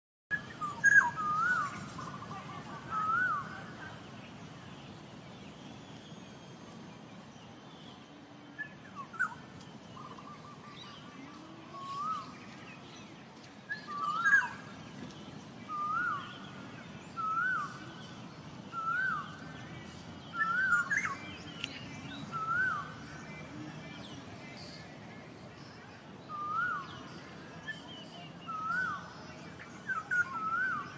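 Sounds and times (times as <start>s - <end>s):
bird whistling calls: 0.5s - 2.2s, 13.7s - 14.6s, 15.7s - 16.4s, 17.2s - 17.8s, 18.7s - 19.4s, 20.3s - 21.7s, 29.8s - 30.9s.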